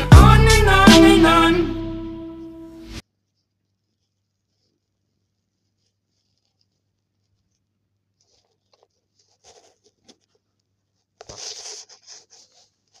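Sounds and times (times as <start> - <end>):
scratching and rustling: 3.2 - 13.0.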